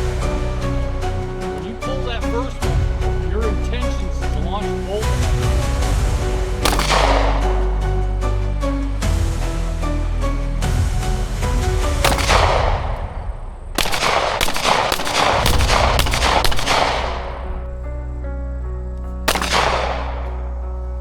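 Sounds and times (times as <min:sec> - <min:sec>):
gunshots with echo: 0:06.6 - 0:08.0, 0:12.0 - 0:17.8, 0:19.2 - 0:20.6.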